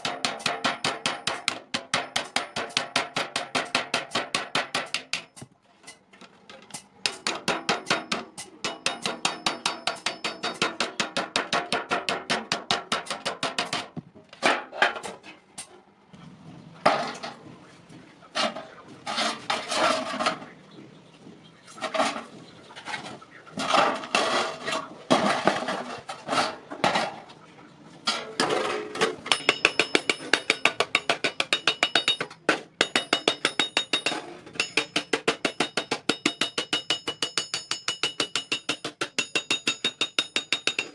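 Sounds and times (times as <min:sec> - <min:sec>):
hammer striking iron on anvil: 0:00.0 - 0:06.0, 0:06.7 - 0:14.0, 0:29.2 - 0:40.9.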